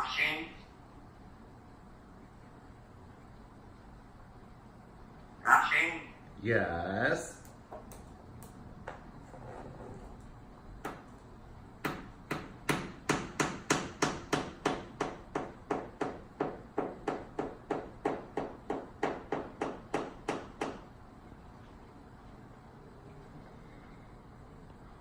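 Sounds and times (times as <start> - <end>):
parrot beak knocking on mirror: 11.8 - 20.8.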